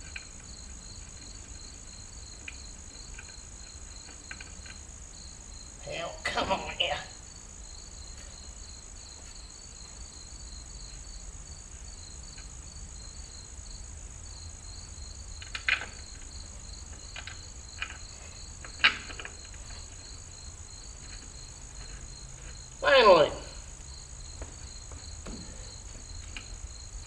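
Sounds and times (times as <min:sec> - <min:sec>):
crickets chirping: 0:00.0 - 0:27.0
tire knocks and clanks on rim: 0:24.2 - 0:26.4.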